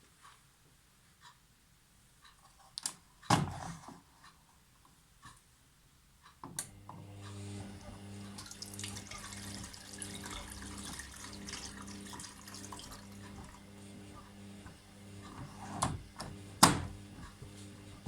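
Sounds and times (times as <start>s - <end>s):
steady electrical hum: 5.7s - 18.0s
water running into drum: 7.6s - 13.7s.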